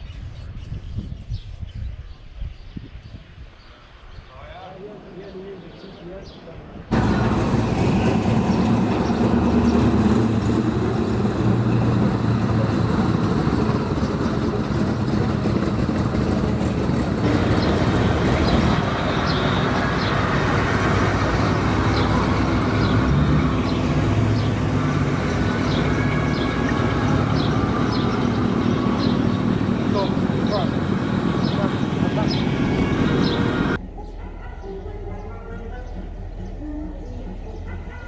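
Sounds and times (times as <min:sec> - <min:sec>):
outdoor noise: 0:00.0 - 0:38.0
car engine running: 0:06.9 - 0:33.8.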